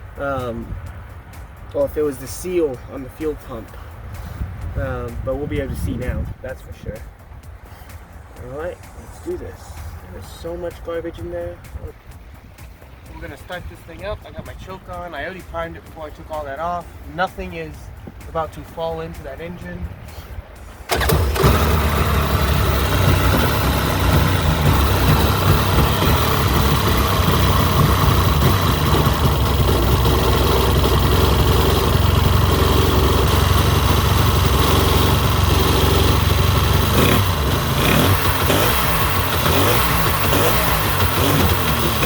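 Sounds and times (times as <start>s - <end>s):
engine starting and running: 20.8s - 42.0s.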